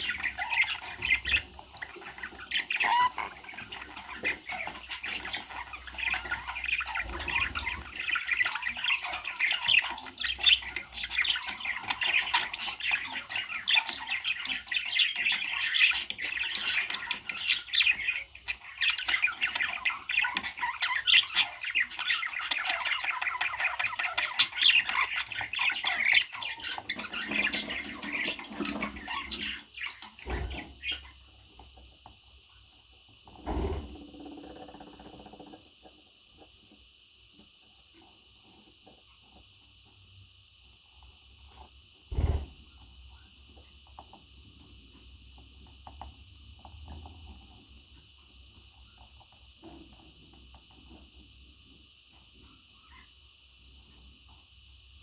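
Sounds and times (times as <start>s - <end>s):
parrot chattering and squawking: 0.0s - 31.2s.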